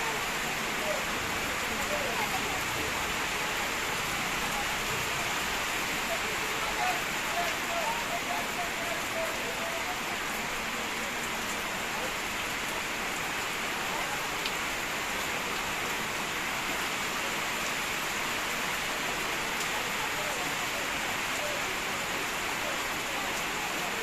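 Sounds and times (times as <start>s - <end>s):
heavy rain falling: 0.0s - 24.0s.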